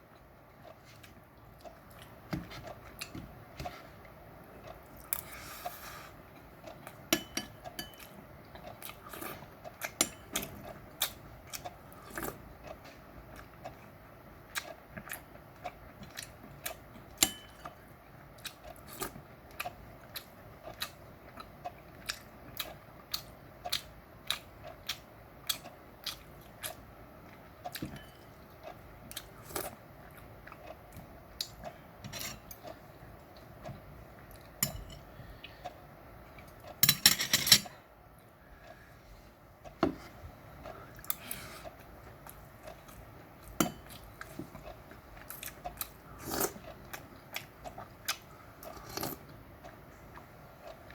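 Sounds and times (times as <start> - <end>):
food being chewed: 0.0 - 37.0, 39.5 - 50.9
cutlery clinking against dish: 7.1 - 8.1, 17.2 - 17.7, 34.6 - 35.0, 36.8 - 37.7.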